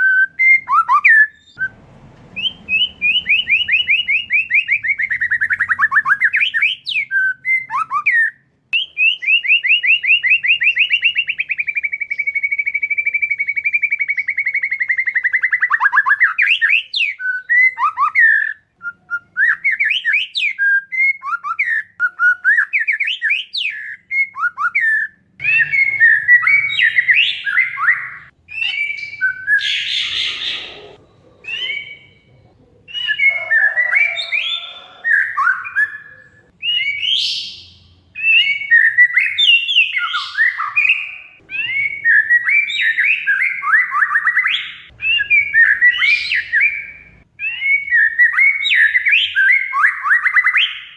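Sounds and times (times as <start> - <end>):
bird singing whistled song: 0.0 - 32.3, 32.9 - 50.9
harsh bird chattering: 25.4 - 36.5.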